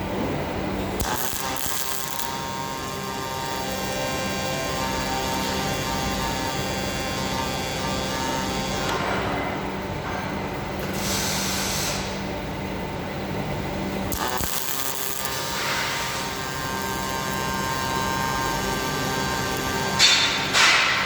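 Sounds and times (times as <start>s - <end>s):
high whine with steady tones: 0.0s - 21.0s
welding machine hum and hiss: 0.0s - 21.0s.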